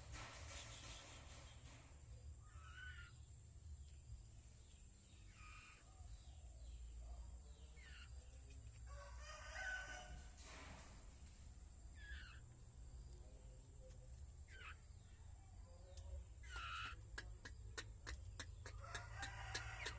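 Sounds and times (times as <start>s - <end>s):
faint bird calls: 2.2s - 3.4s, 5.1s - 6.9s, 11.9s - 12.6s, 13.5s - 19.0s.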